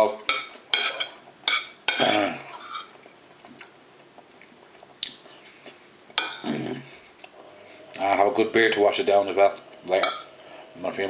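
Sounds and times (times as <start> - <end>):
faint chewing: 2.8 - 8.1.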